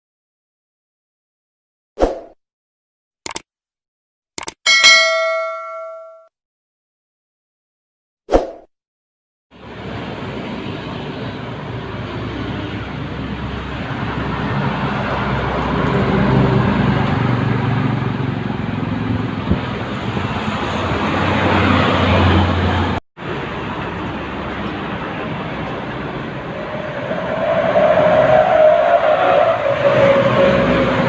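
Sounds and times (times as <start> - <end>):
highway road noise: 9.5 - 31.0
heavy truck passing: 9.6 - 31.0.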